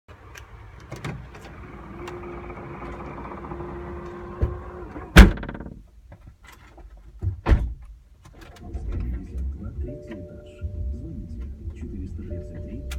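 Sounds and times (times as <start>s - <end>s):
tailgate motor humming: 0.1s - 5.8s
tailgate shutting thud: 0.8s - 5.8s.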